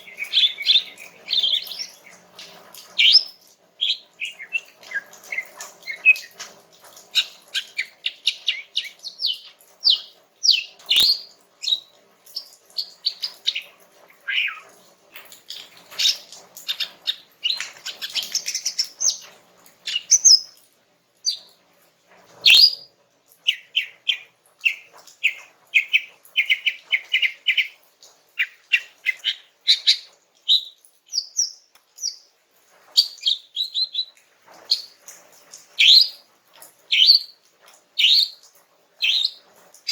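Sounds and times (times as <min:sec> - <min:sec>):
bird singing chirps and trills: 0:00.0 - 0:06.4, 0:07.2 - 0:14.7, 0:19.9 - 0:20.5, 0:36.9 - 0:37.4.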